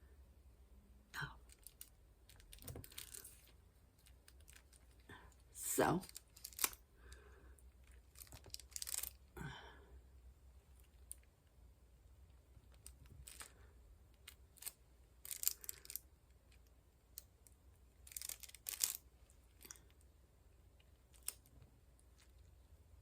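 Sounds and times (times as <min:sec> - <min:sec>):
crinkly rustles: 0:01.5 - 0:06.8, 0:07.8 - 0:09.3, 0:12.6 - 0:13.6, 0:14.2 - 0:16.6, 0:18.0 - 0:20.0.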